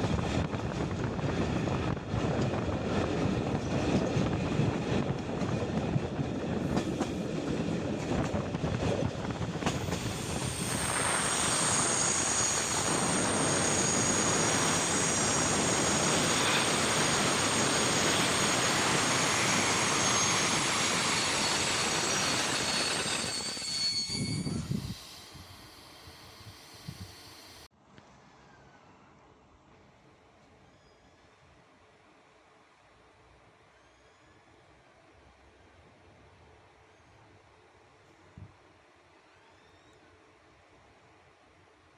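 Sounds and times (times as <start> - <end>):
train wheels rumbling on rails: 0.0 - 27.7
high-pitched wheel squeal: 9.7 - 27.7.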